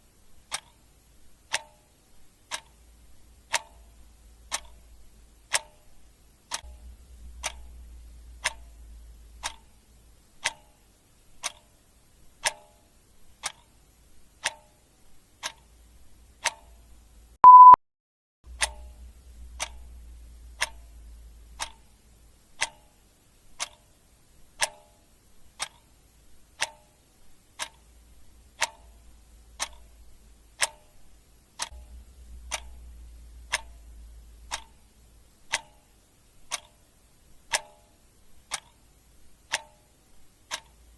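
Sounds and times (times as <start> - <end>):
clock ticking: 0.4 - 17.8, 18.5 - 40.9
short loud beep: 17.4 - 17.8.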